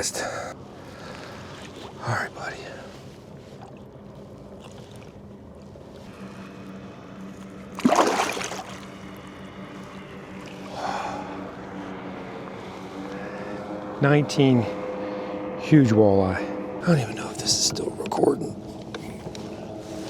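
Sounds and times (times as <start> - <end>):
water moving against a kayak: 0.7 - 6.4, 7.2 - 10.9
fish splashing: 7.8 - 9.2.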